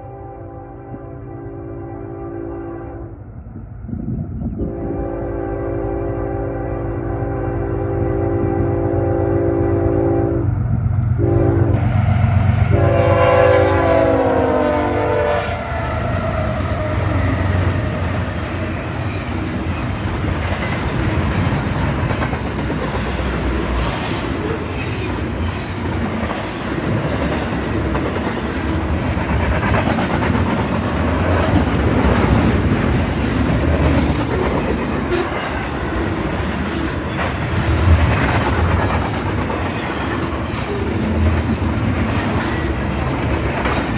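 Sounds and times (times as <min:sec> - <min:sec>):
locomotive air horn blasts: 0:00.0 - 0:03.2, 0:04.6 - 0:10.5, 0:11.2 - 0:17.0
diesel locomotive passing: 0:00.0 - 0:43.9
wheels clacking over rail joints: 0:16.0 - 0:43.9.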